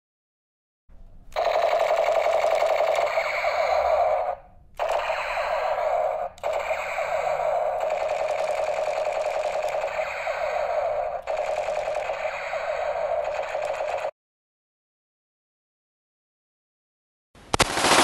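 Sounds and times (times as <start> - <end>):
toy gun rattling clicks: 1.3 - 14.1.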